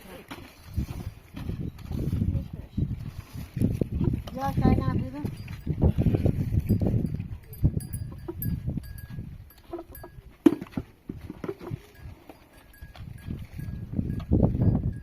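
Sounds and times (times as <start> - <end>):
livestock bells tinkling: 4.9 - 10.8, 11.7 - 15.0.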